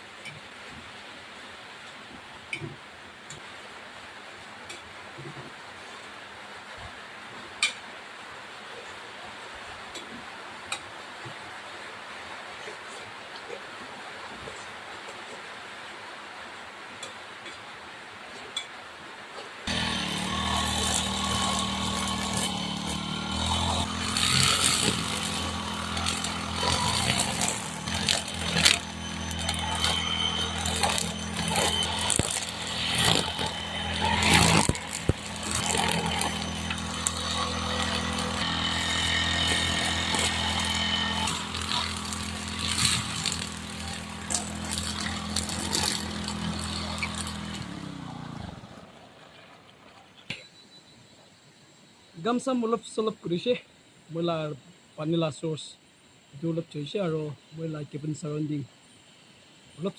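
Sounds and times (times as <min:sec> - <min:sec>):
small engine running: 0:19.7 - 0:49.7.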